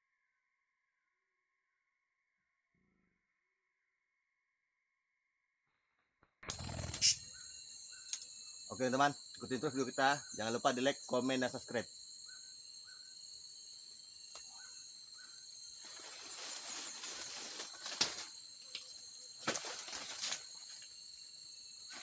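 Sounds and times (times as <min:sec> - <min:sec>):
bird chirps: 0:06.5 - 0:08.8
insect drone: 0:06.5 - 0:22.0
rustling: 0:15.8 - 0:18.3, 0:19.4 - 0:20.9.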